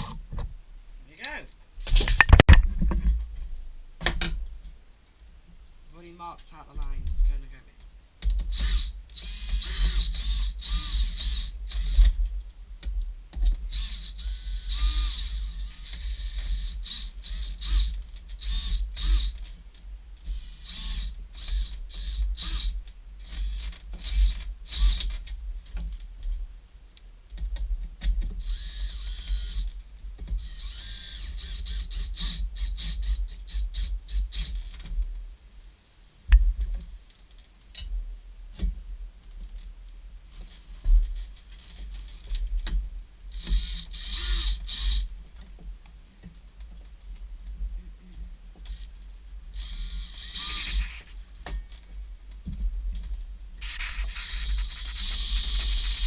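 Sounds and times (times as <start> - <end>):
high whirring or scraping: 49.5 - 51.2, 53.6 - 56.0.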